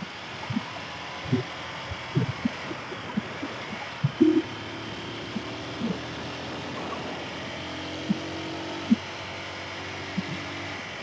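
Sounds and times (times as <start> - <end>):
motorcycle engine running: 0.0 - 11.0
low thumps: 1.3 - 4.6.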